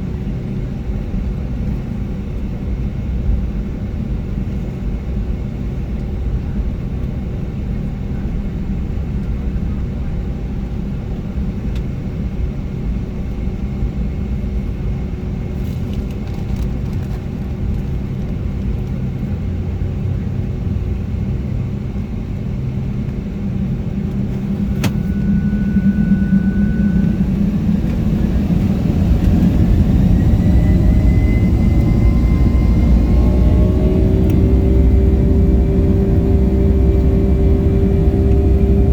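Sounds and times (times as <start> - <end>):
jet engine cabin rumble: 0.0 - 38.9
jet engine whine rising: 16.4 - 38.9.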